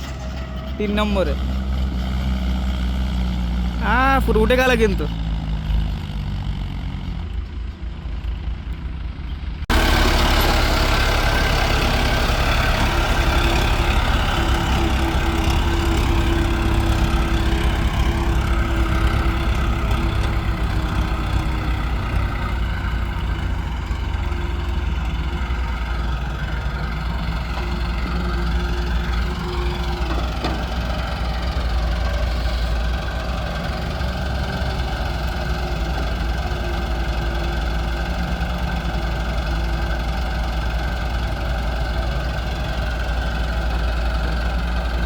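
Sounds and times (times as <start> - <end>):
heavy diesel engines running: 0.0 - 45.0.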